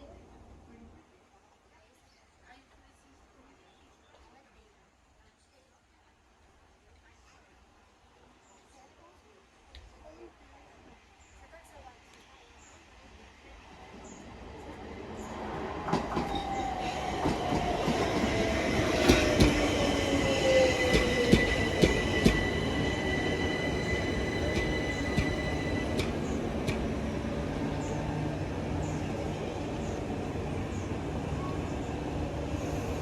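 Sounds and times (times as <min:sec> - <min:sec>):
train running on rails: 0:11.8 - 0:33.0
wheels clacking over rail joints: 0:24.0 - 0:27.1.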